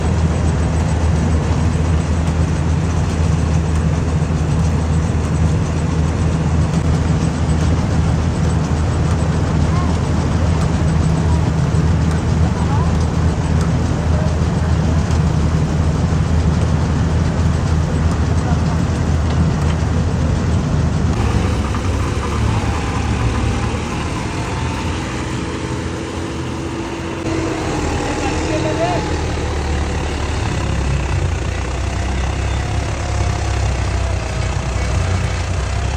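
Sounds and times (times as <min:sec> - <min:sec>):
diesel engine droning: 0:00.0 - 0:35.9
faint steady whine: 0:21.2 - 0:32.6.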